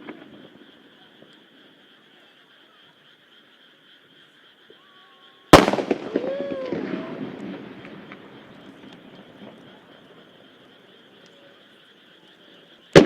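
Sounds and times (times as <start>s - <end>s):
firework bang: 5.5s - 9.7s.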